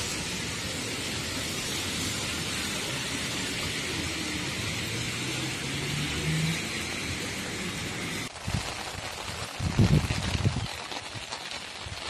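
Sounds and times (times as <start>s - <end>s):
heavy rain on a wet road: 0.0s - 12.0s
passing vehicle engine hum: 2.7s - 8.3s.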